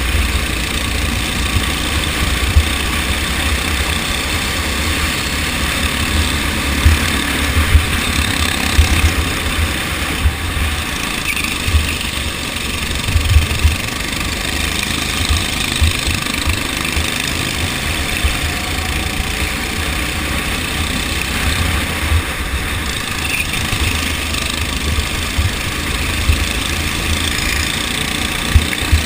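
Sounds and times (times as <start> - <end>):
go-kart engine running: 0.0 - 29.0
wind buffeting microphone: 5.4 - 16.6.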